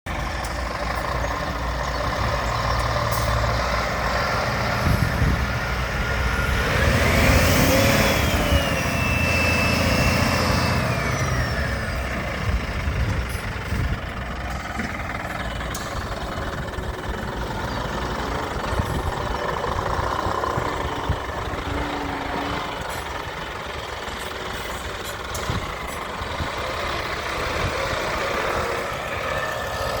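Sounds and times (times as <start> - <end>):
diesel truck idling: 0.1 - 30.0.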